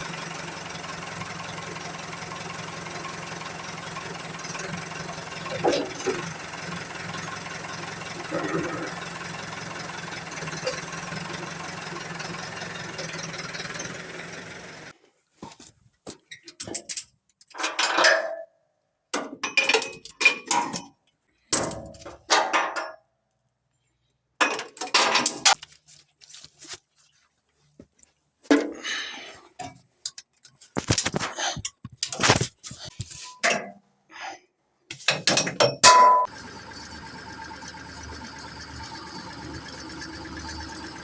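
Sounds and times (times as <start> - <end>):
combine engine running: 0.0 - 14.9, 36.2 - 41.0
metallic clanks and clinks: 35.0 - 36.3.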